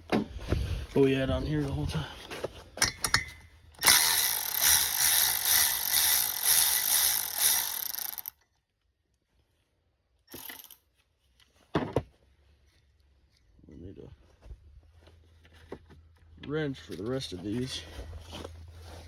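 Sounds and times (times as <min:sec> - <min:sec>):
socket ratchet clicking: 0:03.8 - 0:08.3, 0:10.3 - 0:10.8.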